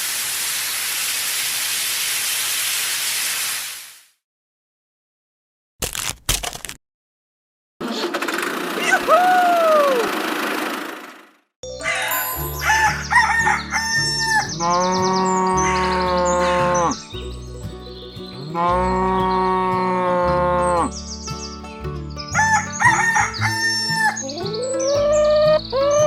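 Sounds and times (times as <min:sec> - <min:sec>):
rooster crowing: 0:11.8 - 0:14.5, 0:15.3 - 0:17.0, 0:22.4 - 0:24.2
bird-like chirps: 0:11.8 - 0:19.5, 0:20.7 - 0:26.0.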